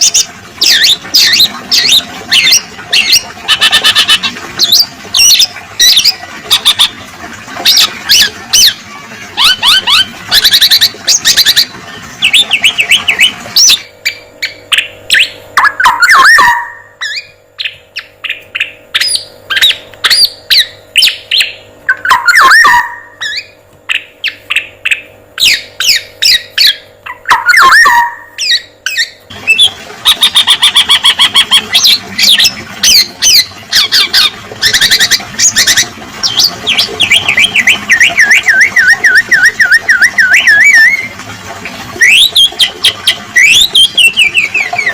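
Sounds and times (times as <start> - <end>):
faint steady hum: 0.0 - 44.9
downward-sweeping bird call: 9.4 - 35.0
wavering bird trill: 9.4 - 41.1.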